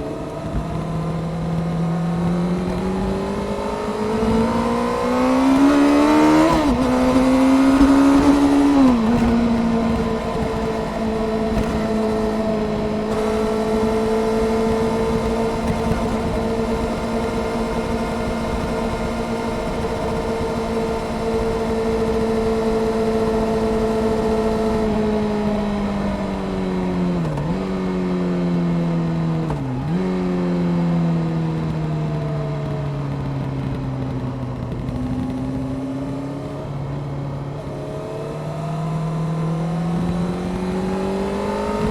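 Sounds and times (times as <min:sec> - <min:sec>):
motorcycle engine revving: 0:00.0 - 0:41.9
wind noise: 0:00.0 - 0:41.9.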